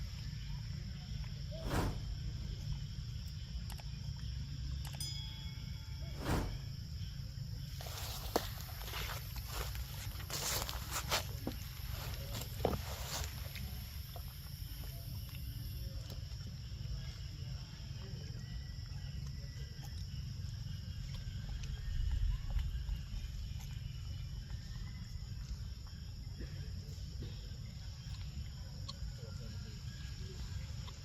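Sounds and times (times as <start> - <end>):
low rumble: 5.7 - 7.6.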